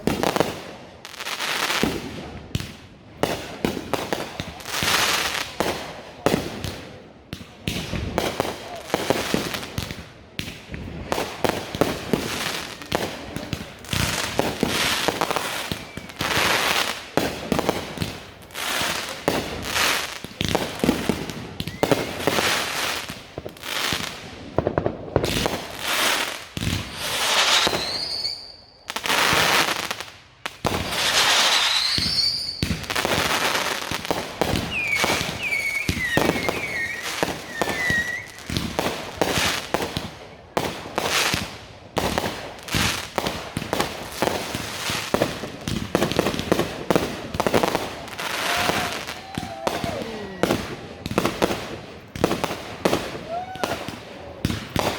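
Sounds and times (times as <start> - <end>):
fireworks bangs and crackles: 0.0 - 54.9
rising firework whistles: 14.0 - 17.0, 20.8 - 23.1, 25.2 - 30.0, 30.7 - 39.6, 47.4 - 51.5
short firework whistles: 14.7 - 16.8, 21.6 - 23.0, 26.8 - 29.7, 30.9 - 39.6, 48.2 - 50.8.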